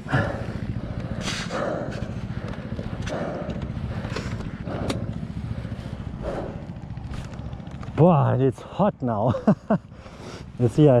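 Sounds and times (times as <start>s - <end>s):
heavy breathing: 0.0s - 7.8s, 9.8s - 10.6s
motorcycle engine idling: 0.0s - 11.0s.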